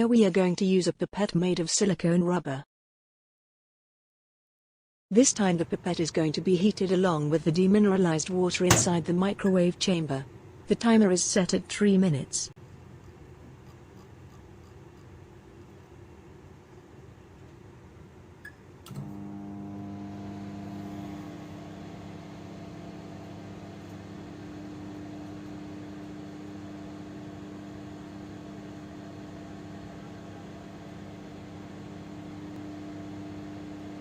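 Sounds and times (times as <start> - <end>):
microwave oven clicks: 8.6 - 9.0, 18.4 - 27.0
microwave oven humming: 16.7 - 34.0.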